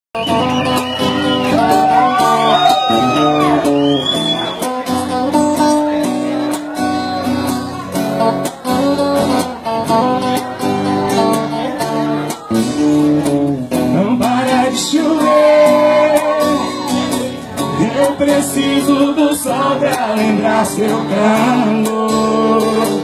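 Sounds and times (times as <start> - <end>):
acoustic guitar strumming chords: 0.2 - 23.0
man singing: 12.5 - 23.0.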